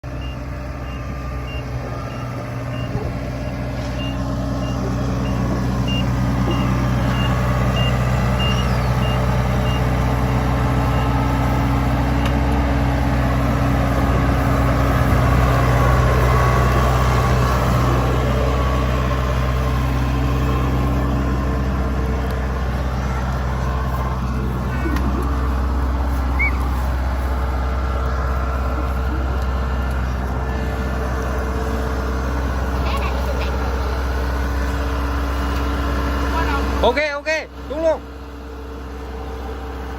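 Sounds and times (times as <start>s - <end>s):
diesel engine running: 0.0s - 39.9s
high warning beeper: 0.2s - 9.9s.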